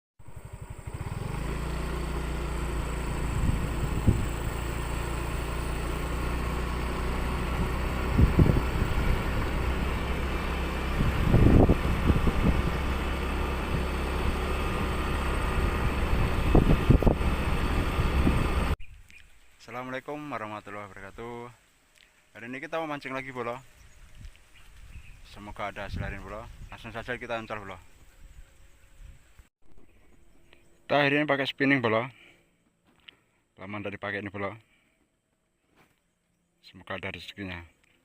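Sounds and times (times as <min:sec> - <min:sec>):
engine droning steadily: 0:00.2 - 0:18.8.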